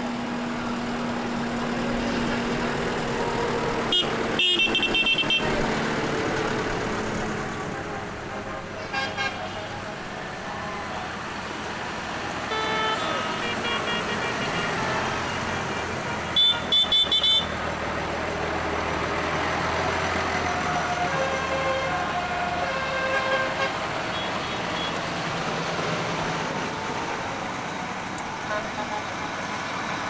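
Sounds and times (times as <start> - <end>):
tractor engines running: 0.0 - 30.0
vehicle horn short toots: 3.9 - 5.6, 12.4 - 15.3, 16.2 - 17.5, 22.8 - 25.0.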